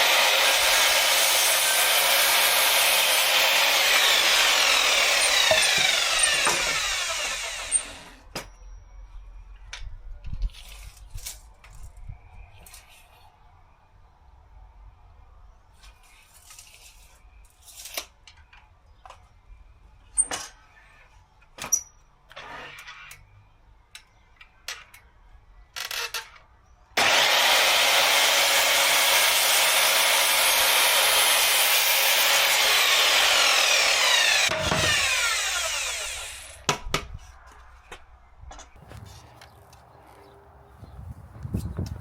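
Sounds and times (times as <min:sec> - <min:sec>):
power saw cutting wood: 0:00.0 - 0:08.2, 0:27.0 - 0:36.7.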